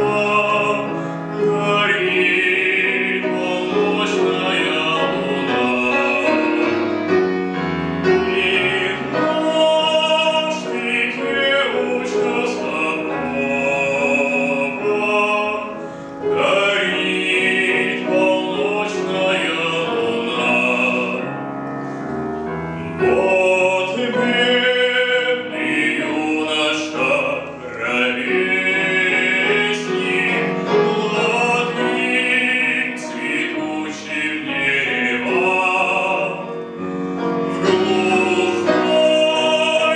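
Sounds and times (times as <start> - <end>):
man singing operatically: 0.0 - 21.5, 23.0 - 39.9
piano: 0.0 - 39.9.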